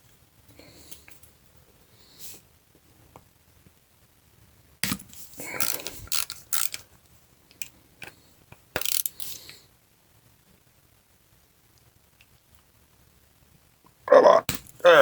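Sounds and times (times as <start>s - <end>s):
hand tools clicking on metal parts: 5.6s - 6.8s, 8.8s - 9.3s.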